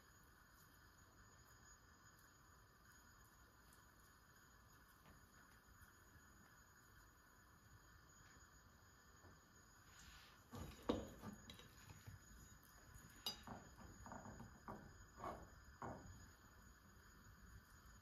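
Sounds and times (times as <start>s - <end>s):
knocks against ceramic plate: 10.5s - 11.7s.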